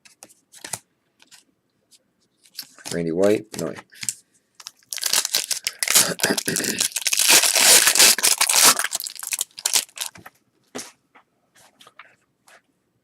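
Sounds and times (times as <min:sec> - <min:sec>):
wrapper tearing and crinkling: 0:04.0 - 0:10.2.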